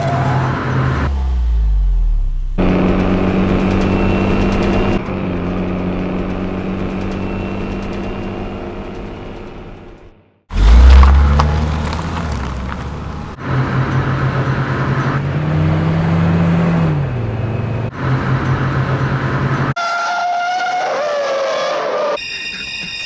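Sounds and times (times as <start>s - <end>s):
loud horn: 19.8s - 22.2s.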